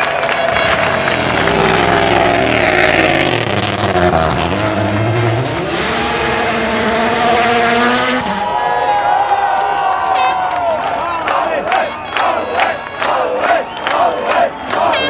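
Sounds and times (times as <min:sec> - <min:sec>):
rally car engine passing by: 0:00.2 - 0:08.6.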